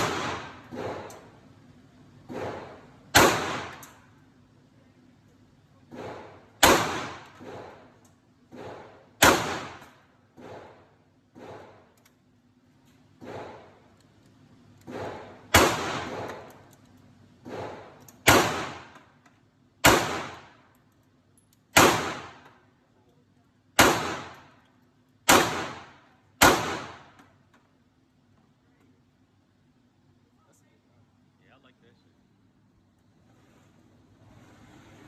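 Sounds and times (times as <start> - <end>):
faint gunshots: 0.0 - 1.1, 2.3 - 4.0, 5.9 - 7.9, 8.5 - 11.9, 13.2 - 13.8, 14.9 - 16.5, 17.5 - 19.1, 19.8 - 20.6, 21.8 - 22.6, 23.8 - 24.6, 25.3 - 27.2
gunshots echoing: 0.0 - 1.1, 2.3 - 4.0, 5.9 - 7.9, 8.6 - 10.8, 14.9 - 16.5, 17.5 - 19.0, 19.8 - 20.6, 21.8 - 22.5, 23.8 - 24.5, 25.3 - 27.2.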